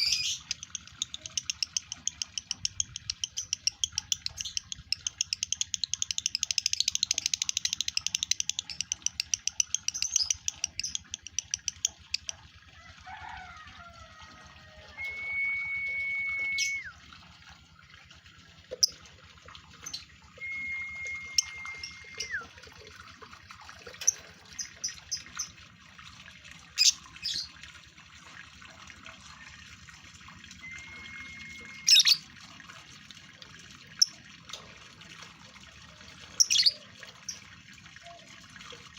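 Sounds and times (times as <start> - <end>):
lovebird whistled notes: 15.0 - 16.9, 20.4 - 22.4, 30.6 - 32.2.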